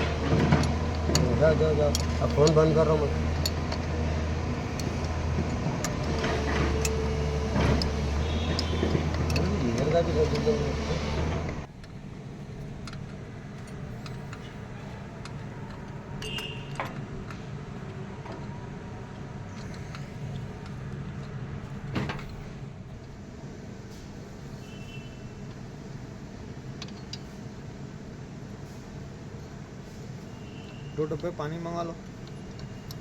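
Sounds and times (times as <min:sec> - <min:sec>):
hand tools clinking on metal: 0:00.2 - 0:04.0, 0:07.7 - 0:10.8.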